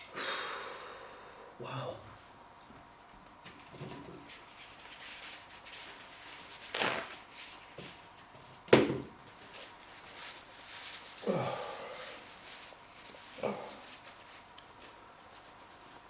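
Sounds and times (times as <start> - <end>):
person breathing hard: 0.0 - 2.1, 11.2 - 12.4.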